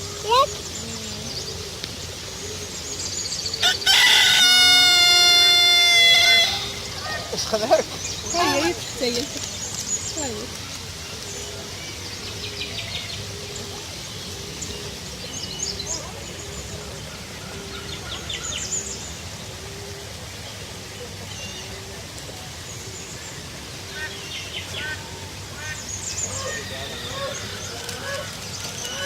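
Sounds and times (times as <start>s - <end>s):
small birds chirping: 0.0s - 3.6s, 6.4s - 17.0s.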